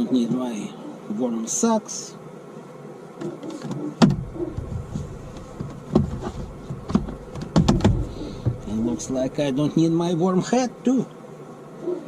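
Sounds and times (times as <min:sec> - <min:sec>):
gear knocking and rustling: 0:04.0 - 0:09.5.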